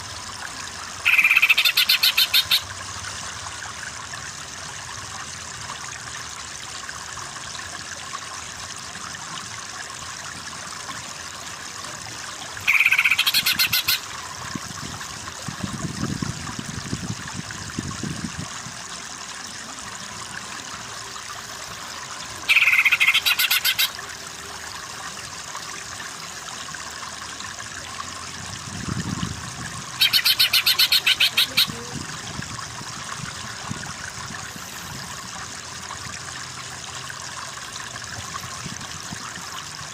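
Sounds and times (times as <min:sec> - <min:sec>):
running water hiss: 0:00.0 - 0:39.9
rattling bird calls: 0:01.0 - 0:02.6, 0:12.6 - 0:14.0, 0:22.5 - 0:23.9, 0:30.0 - 0:31.7.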